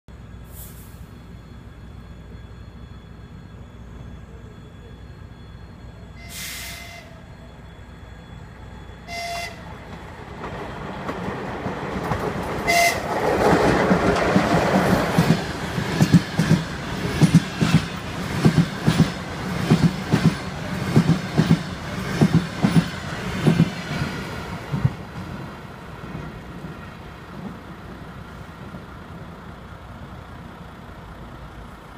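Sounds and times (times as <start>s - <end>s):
train rushing past: 0.4s - 31.9s
train horn blasts: 6.2s - 7.2s, 9.0s - 9.7s, 12.6s - 13.2s
wheels clickety-clack over rail joints: 9.6s - 30.2s.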